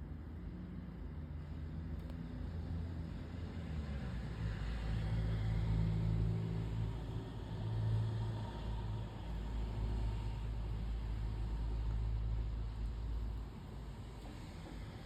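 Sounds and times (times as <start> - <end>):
low steady engine-like hum: 0.0 - 15.0.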